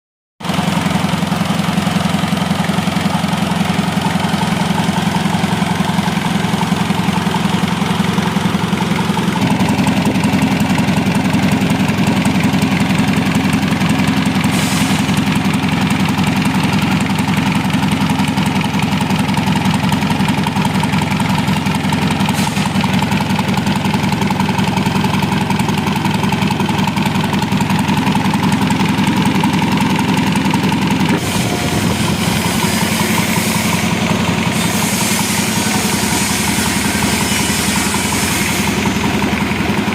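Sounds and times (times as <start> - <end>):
diesel engine idling: 0.4 - 39.9
brief hissing noises: 14.4 - 15.2, 22.3 - 22.8, 31.2 - 39.0.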